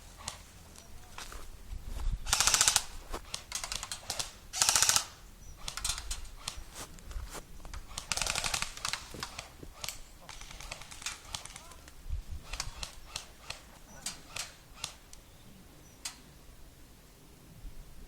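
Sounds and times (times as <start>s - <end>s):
airsoft gun full-auto bursts: 2.2s - 6.7s, 7.9s - 11.8s, 12.4s - 15.1s.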